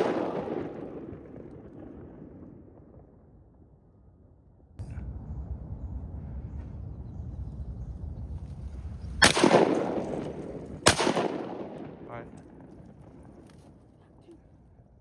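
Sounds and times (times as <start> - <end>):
shotgun shots echoing: 0.0 - 2.6, 9.2 - 13.6
low rumble: 0.2 - 13.9.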